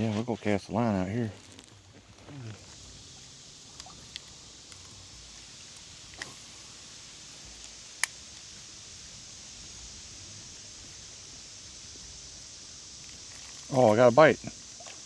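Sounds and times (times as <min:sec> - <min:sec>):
faint high hiss of lakeside ambience: 0:00.0 - 0:15.0
fishing tackle clicks: 0:03.7 - 0:07.0, 0:07.6 - 0:08.5.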